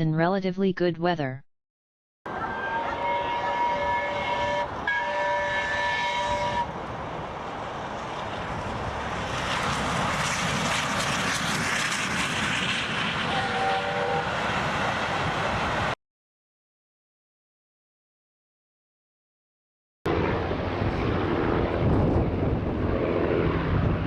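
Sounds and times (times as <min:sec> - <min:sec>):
passing airplane engine: 0:02.3 - 0:16.0, 0:20.1 - 0:24.0.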